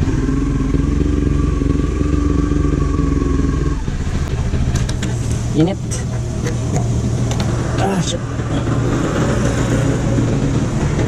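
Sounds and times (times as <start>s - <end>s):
motorcycle engine idling: 0.0s - 7.7s.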